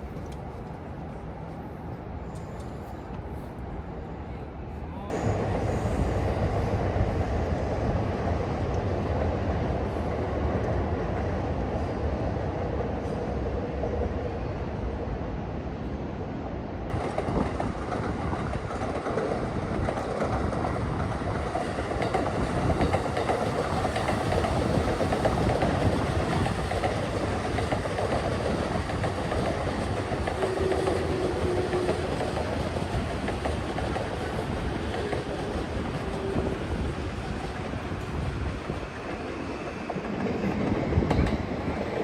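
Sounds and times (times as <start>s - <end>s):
train rumbling on tracks: 0.0s - 42.0s.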